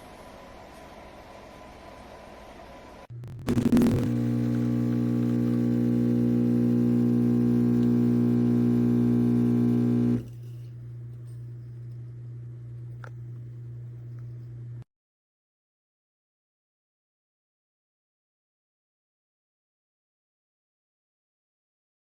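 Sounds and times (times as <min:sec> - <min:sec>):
faint low hum: 0:03.1 - 0:14.8
espresso machine pump buzzing: 0:03.4 - 0:10.4.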